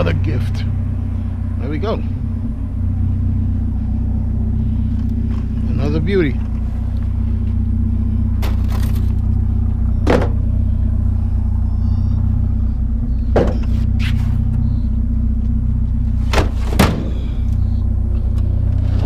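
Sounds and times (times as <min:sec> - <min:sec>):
vehicle engine idling: 0:00.0 - 0:19.0
sharp clunks and knocks: 0:10.0 - 0:10.4, 0:13.3 - 0:13.9, 0:16.3 - 0:17.3.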